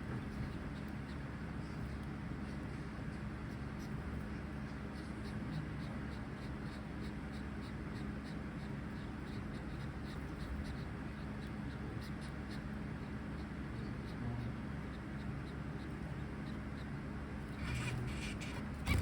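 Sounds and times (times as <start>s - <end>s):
finches calling: 0.1s - 19.0s.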